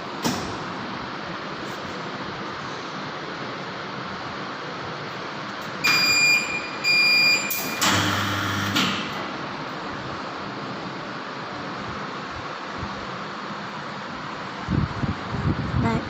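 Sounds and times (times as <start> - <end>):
short electronic beeps: 5.8 - 7.8.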